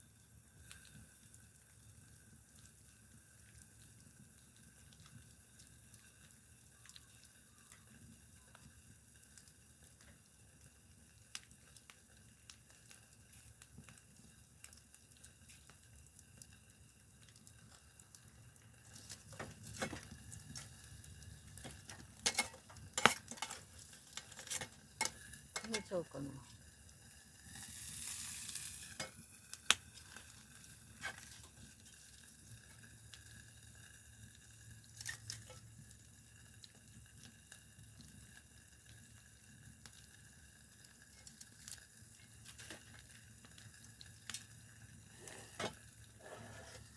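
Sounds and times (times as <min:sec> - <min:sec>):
campfire crackling: 0:00.0 - 0:46.9
knocks and rustles of handling: 0:18.9 - 0:20.8.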